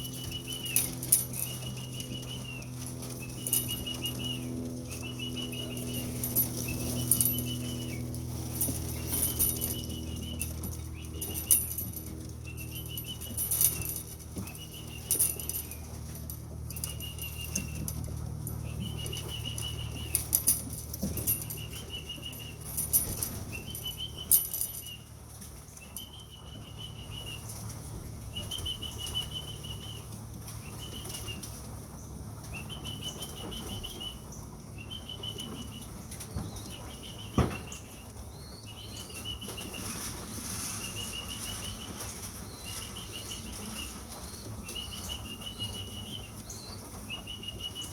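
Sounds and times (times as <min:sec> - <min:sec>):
pigeon wings flapping: 0:00.0 - 0:25.0
sharp wing clatters: 0:00.0 - 0:26.5.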